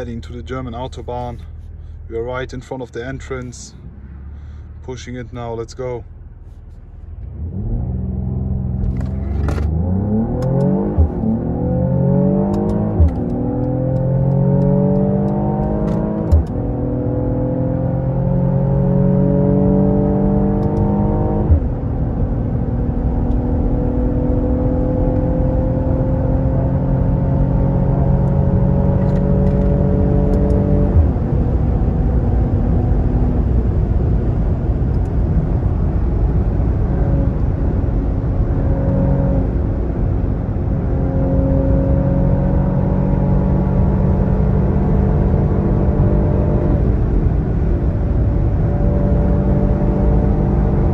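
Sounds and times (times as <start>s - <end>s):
car engine accelerating hard: 7.1s - 50.9s
gear shift click: 8.8s - 11.3s, 12.4s - 16.7s, 20.5s - 21.7s, 28.2s - 31.2s.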